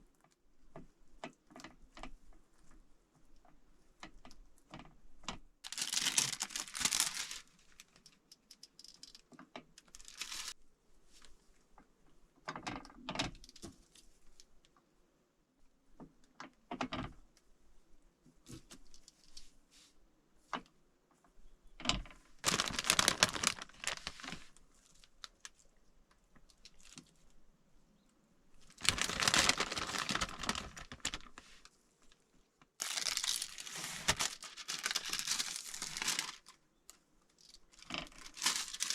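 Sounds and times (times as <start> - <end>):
plastic packaging crinkling and tearing: 5.6 - 9.2, 9.8 - 10.6, 22.4 - 25.6, 26.5 - 27.1, 28.6 - 31.7, 32.8 - 36.6, 37.4 - 38.9.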